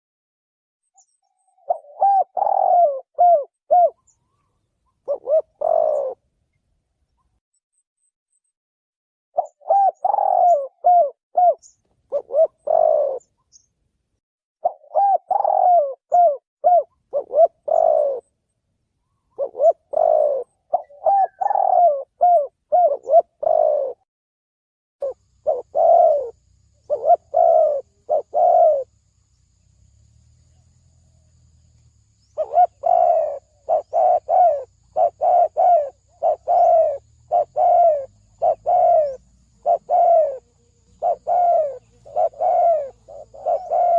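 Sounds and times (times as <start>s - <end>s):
dove cooing: 1.6s - 6.2s, 9.4s - 13.4s, 14.6s - 18.3s, 19.3s - 24.0s, 25.0s - 29.0s, 32.4s - 43.9s.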